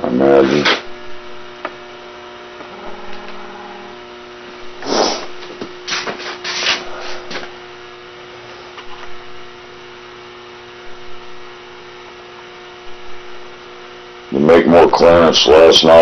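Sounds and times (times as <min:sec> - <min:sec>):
steady electrical hum: 0:00.0 - 0:16.0
scraping rubbing noises: 0:04.8 - 0:07.2.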